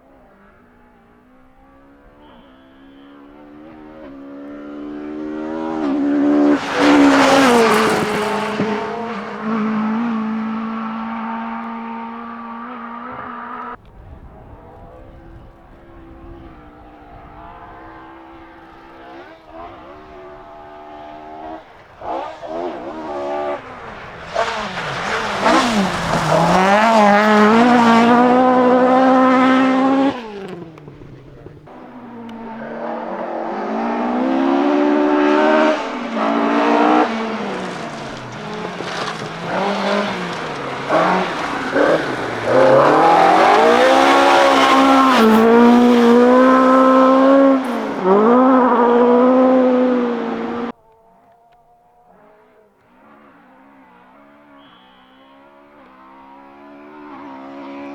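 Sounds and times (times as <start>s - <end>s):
rally car engines revving: 0.0s - 57.9s.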